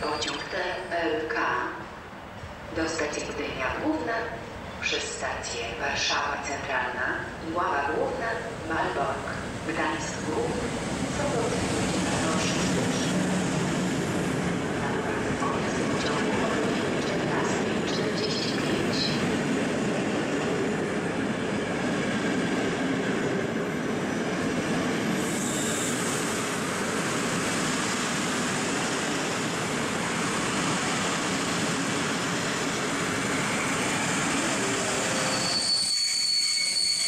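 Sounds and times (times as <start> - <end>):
high wheel squeal: 25.2 - 26.2, 34.7 - 37.0.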